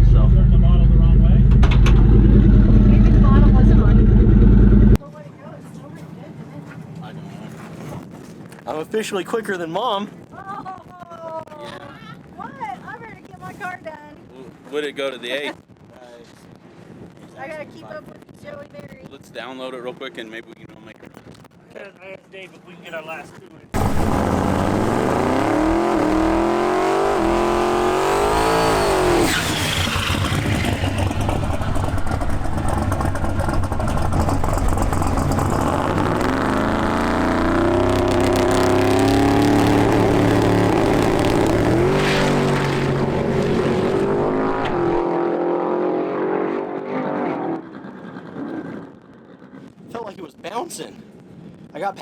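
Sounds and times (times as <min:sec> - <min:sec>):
drag car engine at full throttle: 0:00.0 - 0:05.0, 0:23.8 - 0:49.8.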